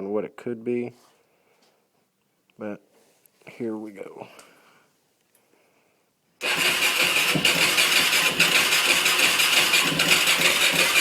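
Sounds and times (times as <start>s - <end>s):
quad engine cranking: 6.4s - 11.0s.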